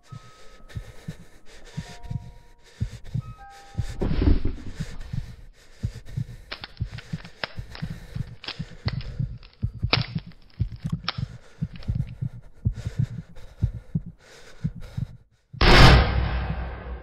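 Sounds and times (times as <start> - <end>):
low heartbeat-like thumping: 0.8 - 17.0
scattered clicks: 6.5 - 12.2
loud gunshot bang: 15.6 - 17.0.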